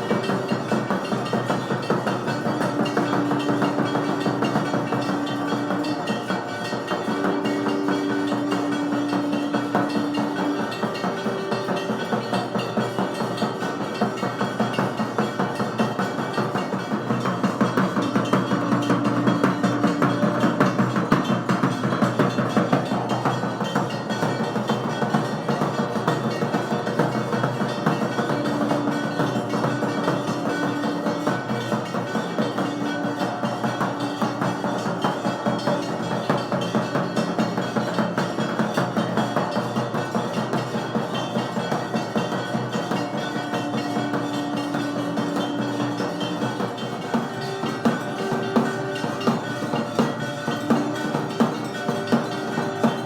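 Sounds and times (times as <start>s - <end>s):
held note: 0.0s - 25.6s, 42.8s - 53.0s
fast even drumbeat: 0.0s - 53.0s
ringing bells: 0.0s - 53.0s
held musical note: 44.0s - 53.0s.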